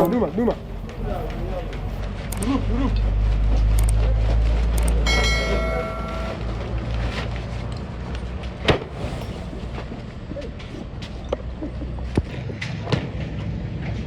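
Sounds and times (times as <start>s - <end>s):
diesel engine droning: 0.0s - 14.0s
horn sounding: 4.8s - 6.8s.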